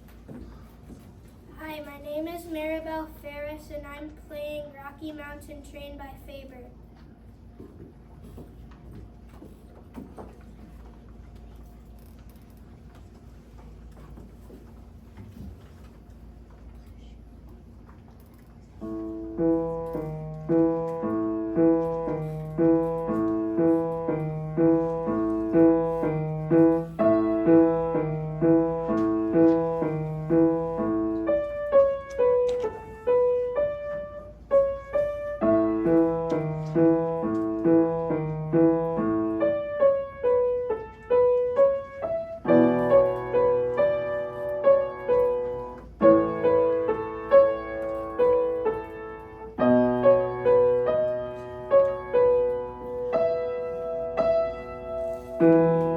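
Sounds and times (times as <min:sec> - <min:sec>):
solo piano playing: 0:18.8 - 0:55.9.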